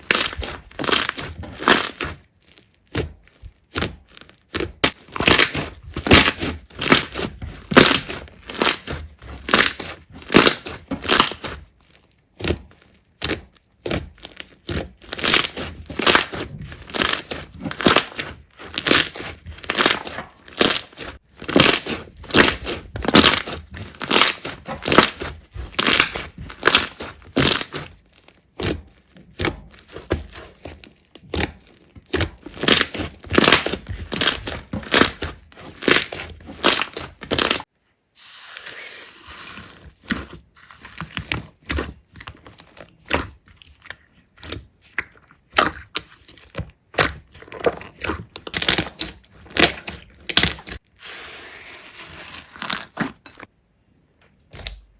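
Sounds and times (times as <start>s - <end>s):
slime squeezed crackling: 0.0s - 37.7s, 39.5s - 50.8s.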